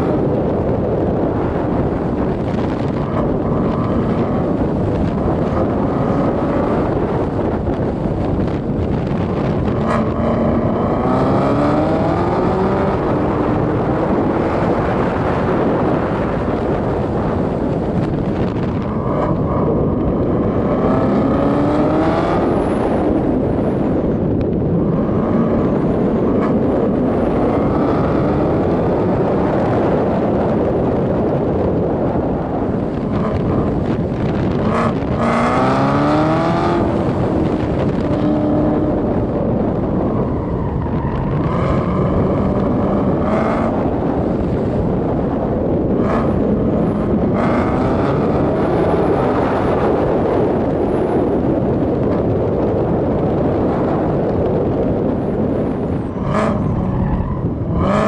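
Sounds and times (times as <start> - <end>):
car engine accelerating hard: 0.0 - 58.0
wind and road rush: 0.0 - 58.0.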